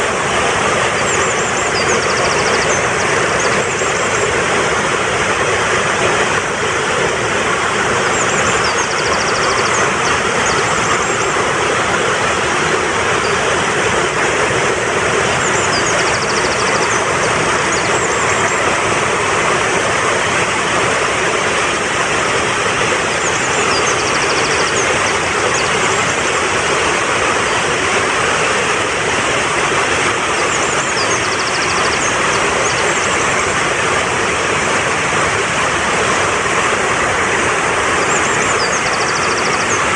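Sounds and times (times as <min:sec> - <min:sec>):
stream rushing: 0:00.0 - 0:39.9
high trilling bird call: 0:00.8 - 0:04.3, 0:08.0 - 0:11.5, 0:15.3 - 0:18.8, 0:23.2 - 0:26.2, 0:30.4 - 0:33.3, 0:38.0 - 0:39.9.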